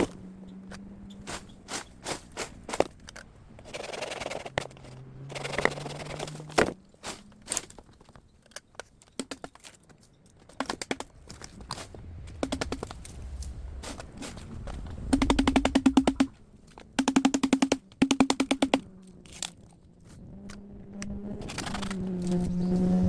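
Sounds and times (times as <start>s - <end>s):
bamboo scraping and rustling: 0.0s - 17.0s, 18.7s - 20.6s, 21.4s - 22.6s
bamboo knocks and cracks: 5.6s - 8.2s, 9.1s - 9.8s, 10.4s - 13.2s.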